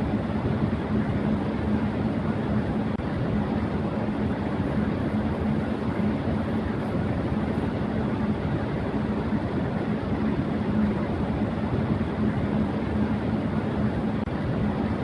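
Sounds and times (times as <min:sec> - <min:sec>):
electric fan running: 0:00.0 - 0:15.0.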